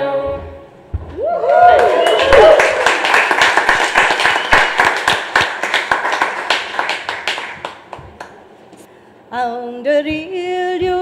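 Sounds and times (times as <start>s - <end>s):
heavy thumps: 0.9s - 1.2s
crowd clapping: 1.4s - 8.5s.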